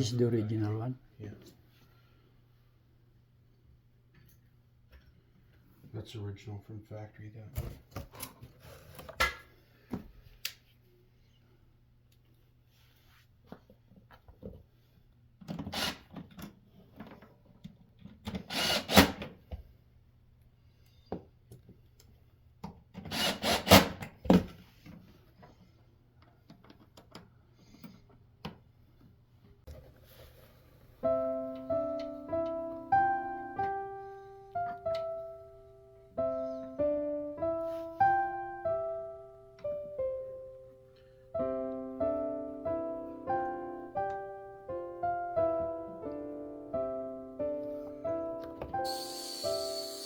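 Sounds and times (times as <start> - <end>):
piano music: 30.9 - 50.0.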